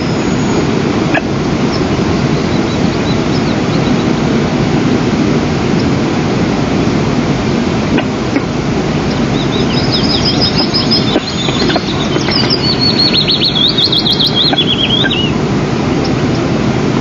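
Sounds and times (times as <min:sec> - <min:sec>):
bird chirping: 0:00.0 - 0:04.3, 0:09.0 - 0:15.4
wind on microphone: 0:00.0 - 0:17.0.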